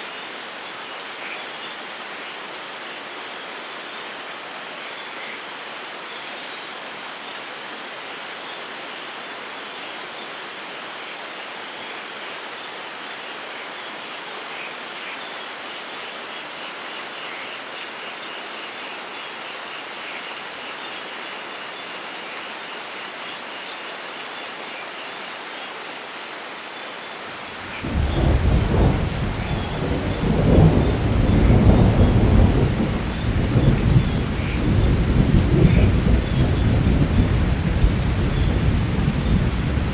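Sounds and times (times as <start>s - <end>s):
steady rain falling: 0.0s - 39.9s
deep rolling thunder: 27.6s - 39.9s.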